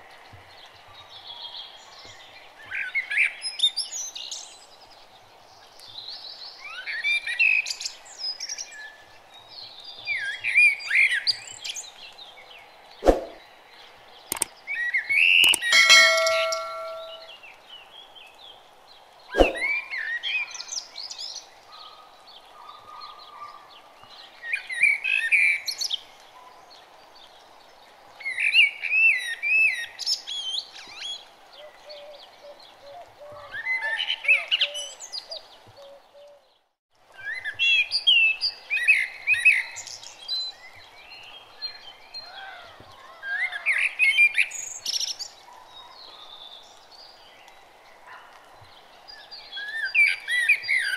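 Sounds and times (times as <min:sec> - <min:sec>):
birds chirping and twittering: 0:00.0 - 0:50.9
sharp click: 0:14.3 - 0:14.5, 0:15.4 - 0:17.3.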